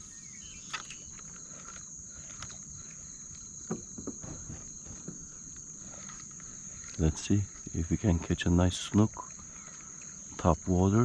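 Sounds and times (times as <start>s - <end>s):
insects chirping: 0.0s - 11.0s
faint knocks and clicks: 0.7s - 7.0s.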